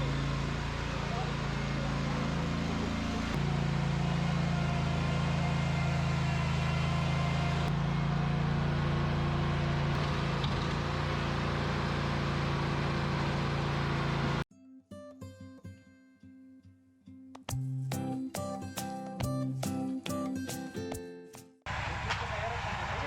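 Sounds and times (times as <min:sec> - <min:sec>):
machine engine droning: 0:00.0 - 0:14.4, 0:21.7 - 0:23.0.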